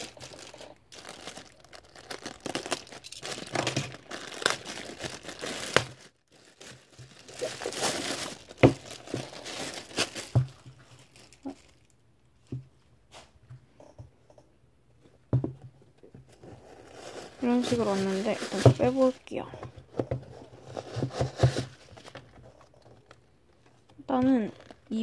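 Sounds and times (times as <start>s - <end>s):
package wrapping tearing: 0.0s - 11.9s.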